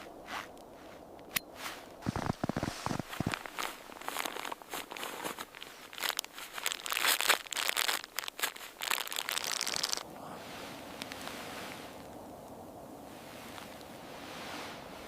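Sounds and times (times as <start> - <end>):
crunching and crinkling: 0.0 - 10.1, 10.8 - 12.5.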